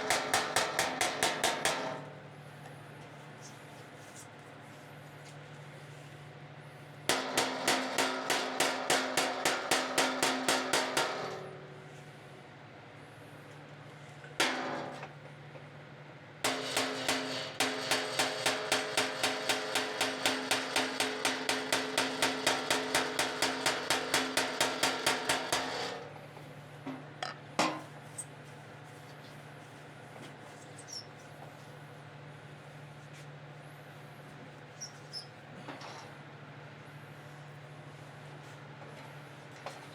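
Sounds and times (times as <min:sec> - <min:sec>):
hammer tapping sheet metal: 0:00.0 - 0:02.1, 0:07.1 - 0:11.5, 0:14.4 - 0:15.1, 0:16.4 - 0:26.1.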